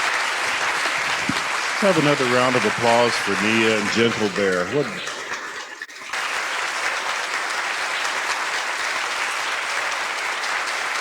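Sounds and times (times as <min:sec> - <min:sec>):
large audience applauding: 0:00.0 - 0:05.4, 0:06.1 - 0:11.0.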